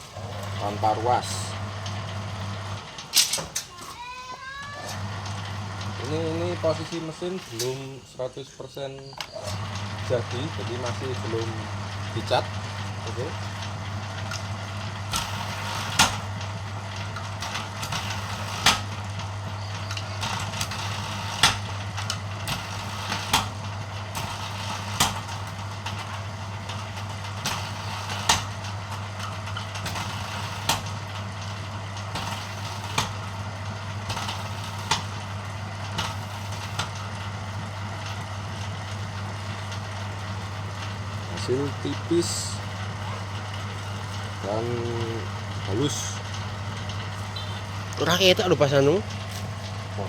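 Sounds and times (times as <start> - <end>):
machine humming: 0.0 - 3.6, 4.5 - 8.4, 9.2 - 50.0.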